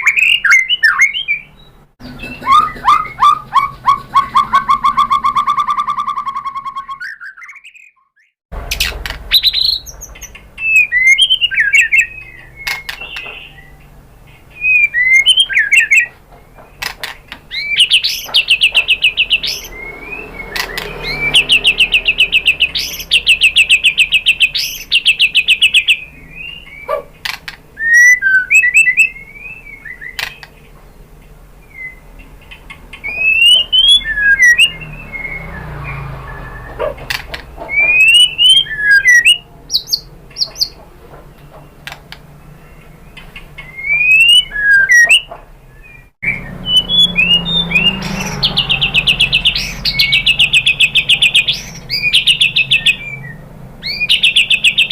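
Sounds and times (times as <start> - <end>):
bird singing whistled phrases: 0.0 - 13.8, 14.5 - 16.1, 17.5 - 27.0, 27.8 - 30.4, 31.6 - 32.1, 33.0 - 36.8, 37.7 - 40.7, 43.6 - 54.9
bird rattling trills: 8.6 - 13.6, 14.6 - 29.1.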